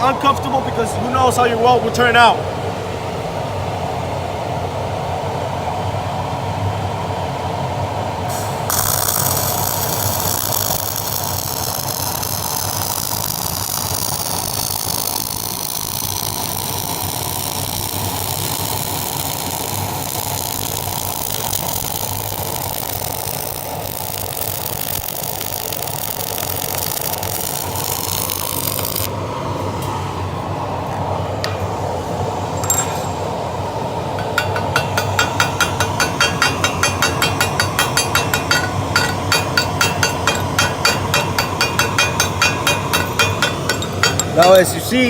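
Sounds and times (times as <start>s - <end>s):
welding arc crackling hiss: 8.3s - 29.1s.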